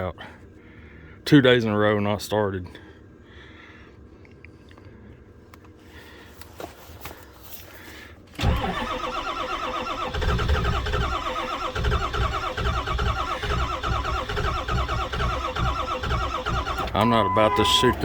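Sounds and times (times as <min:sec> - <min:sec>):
starter motor cranking diesel engine: 0:08.4 - 0:18.0.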